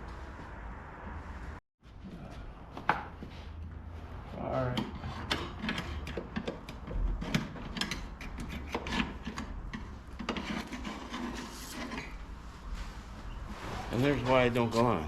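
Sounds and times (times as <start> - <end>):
screwdriver scraping wood: 4.8 - 12.1.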